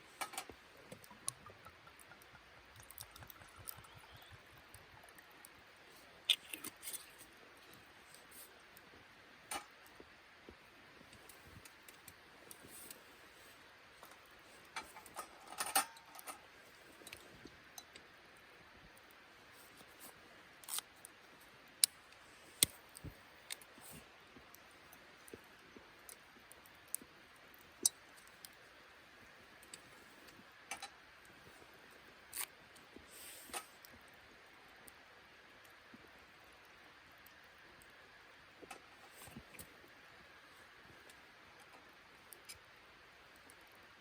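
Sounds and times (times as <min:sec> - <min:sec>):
faint steady background noise: 0:00.0 - 0:44.0
objects clicking and tapping: 0:00.2 - 0:05.3.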